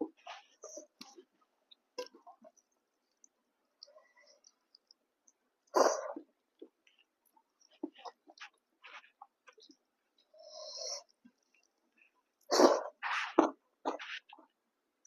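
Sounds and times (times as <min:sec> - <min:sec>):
wet chewing and lip smacking: 0:00.1 - 0:12.2
slurping and sucking: 0:12.5 - 0:13.5.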